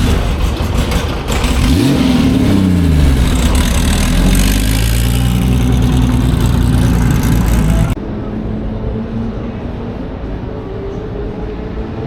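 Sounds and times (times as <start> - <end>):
racing car engine at full throttle: 0.0 - 8.0.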